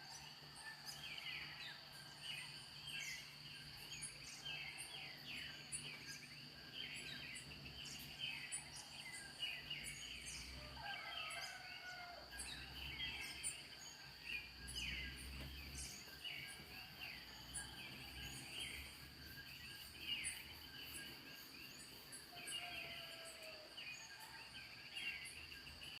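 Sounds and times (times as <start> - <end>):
birds calling and chirping: 0.0 - 26.0
high insect drone: 0.0 - 26.0.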